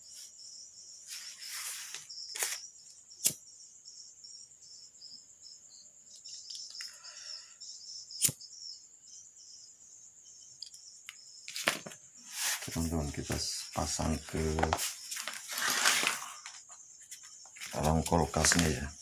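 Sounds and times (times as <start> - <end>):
crickets chirring: 0.0 - 19.0
brief rustle: 14.6 - 16.6.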